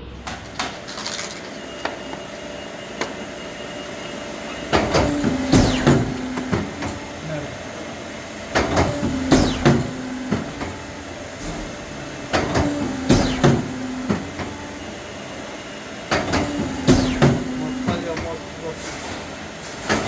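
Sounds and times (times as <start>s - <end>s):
machine low hum: 0.0s - 20.0s
machine clacking and knocking: 4.5s - 7.2s, 8.5s - 14.6s, 16.1s - 20.0s.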